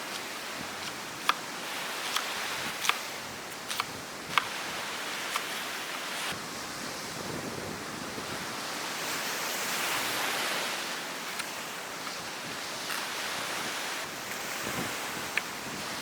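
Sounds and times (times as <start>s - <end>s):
surf washing onto beach: 0.0s - 16.0s
wind: 0.0s - 16.0s.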